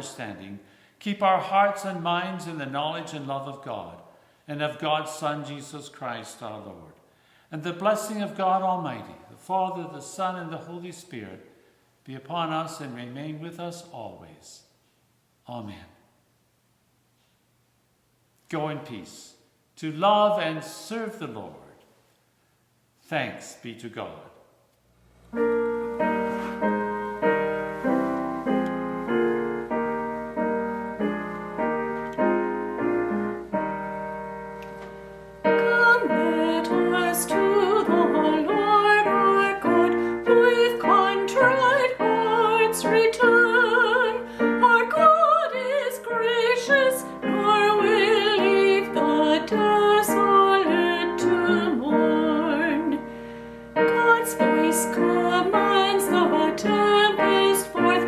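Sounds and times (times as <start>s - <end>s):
piano playing: 25.3s - 58.0s
person singing with vibrato: 35.4s - 58.0s.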